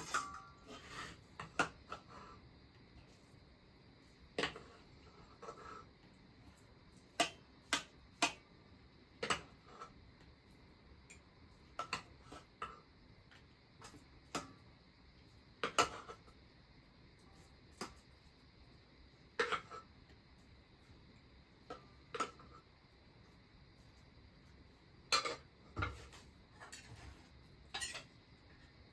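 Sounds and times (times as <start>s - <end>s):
metal utensils clinking on dishes: 27.7s - 28.2s.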